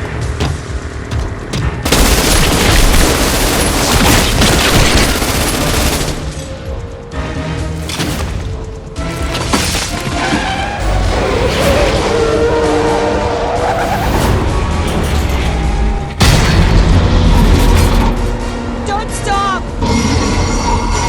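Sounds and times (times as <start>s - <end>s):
dramatic film score music: 0.0s - 21.0s
booms and gunfire cracks: 0.4s - 6.4s.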